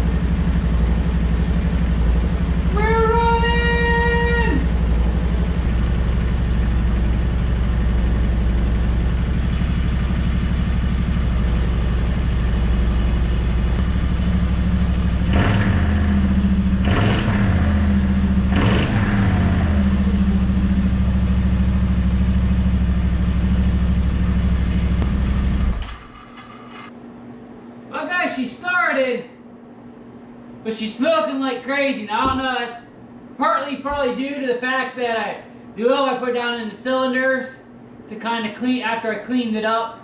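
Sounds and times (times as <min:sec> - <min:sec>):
engine idling and revving: 0:00.0 - 0:26.9.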